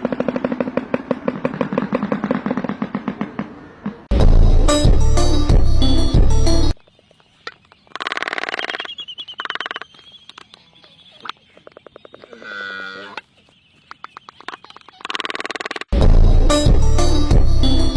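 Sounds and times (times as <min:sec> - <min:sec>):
music: 0:04.1 - 0:06.8, 0:16.0 - 0:17.9.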